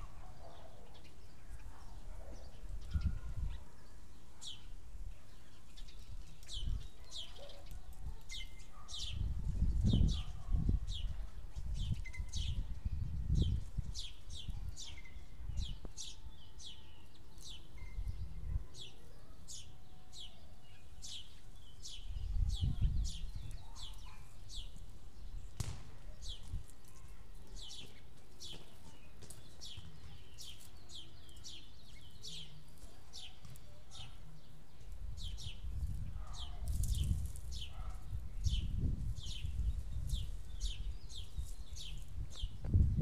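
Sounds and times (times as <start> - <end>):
bird chirping: 0.0 - 42.8
low wind rumble on microphone: 1.6 - 3.8, 7.7 - 16.0, 21.9 - 26.7, 35.0 - 43.0.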